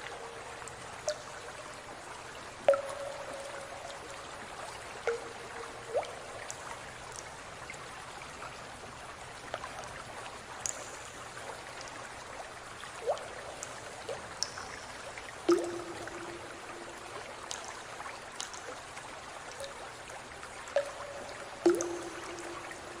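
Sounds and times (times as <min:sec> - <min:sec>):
drops plinking into water: 0:00.0 - 0:01.4, 0:02.7 - 0:04.0, 0:05.0 - 0:07.2, 0:15.4 - 0:18.7, 0:20.8 - 0:23.0
water running and trickling: 0:00.0 - 0:23.0.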